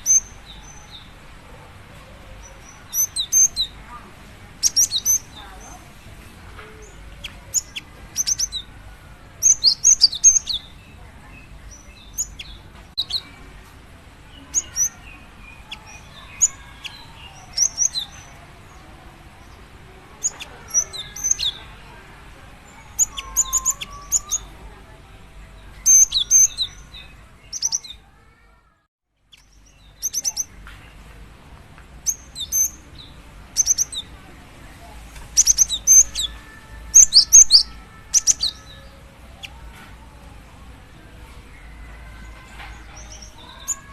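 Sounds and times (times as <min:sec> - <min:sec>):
bird short high chirps: 0:37.0 - 0:38.8.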